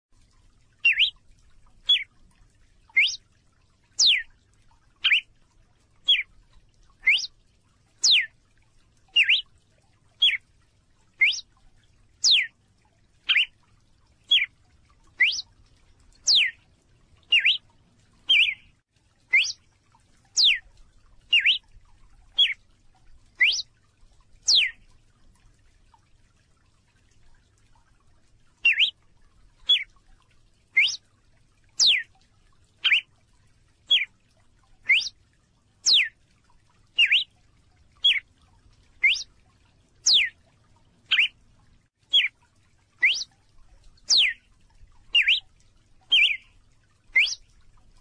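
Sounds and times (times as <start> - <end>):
songbird sharp call: 0.9 - 1.1, 3.0 - 3.2, 7.1 - 7.3, 11.2 - 11.4, 12.2 - 12.5, 15.2 - 15.4, 17.3 - 17.6, 19.4 - 19.6, 23.4 - 23.6, 43.0 - 43.2, 45.2 - 45.4, 47.2 - 47.4.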